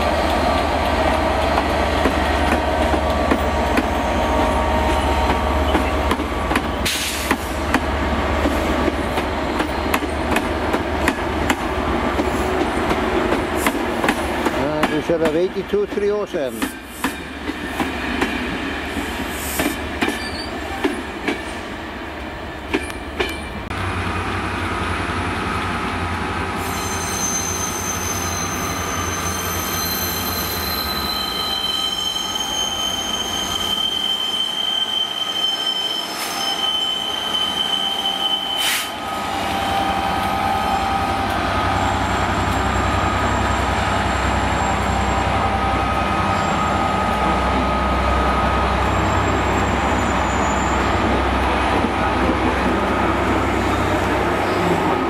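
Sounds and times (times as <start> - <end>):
wheels squealing on curve: 26.6 - 39.0, 48.9 - 51.1.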